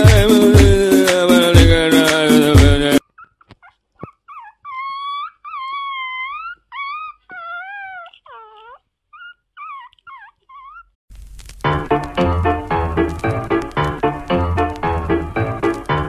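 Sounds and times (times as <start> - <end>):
puppy howling: 3.0 - 11.0
puppy yipping: 3.0 - 11.0.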